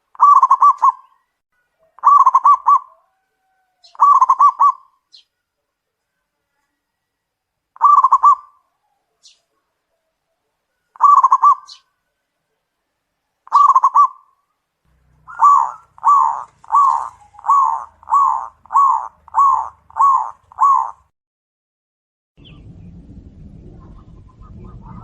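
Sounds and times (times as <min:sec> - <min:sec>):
dove cooing: 0:00.2 - 0:01.2, 0:01.8 - 0:04.9, 0:07.8 - 0:09.4, 0:10.8 - 0:11.9, 0:13.5 - 0:14.3, 0:15.2 - 0:21.1.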